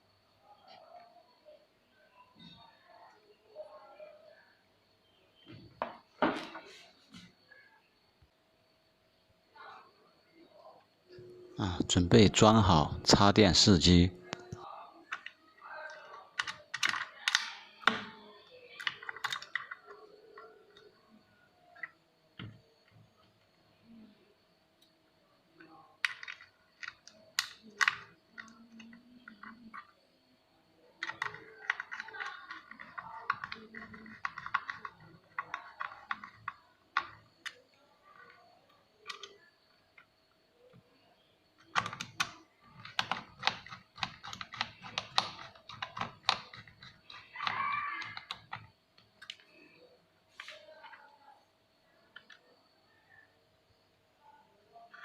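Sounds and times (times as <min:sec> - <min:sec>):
clicks and knocks of handling: 0:14.3 - 0:18.2, 0:26.0 - 0:30.0, 0:41.6 - 0:51.1.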